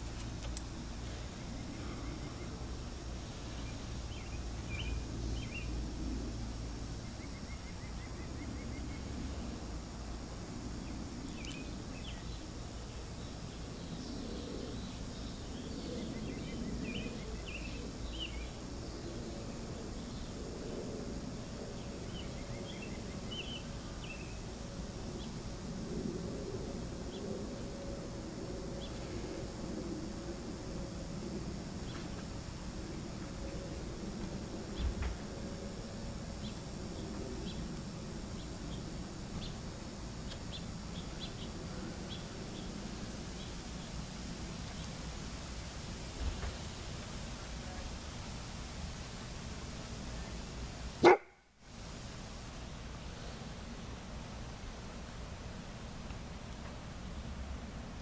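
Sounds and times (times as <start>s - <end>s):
steady low rumble: 0.0s - 51.0s
small birds chirping and trilling: 0.5s - 5.9s, 10.8s - 20.4s, 21.4s - 24.4s, 38.3s - 44.0s.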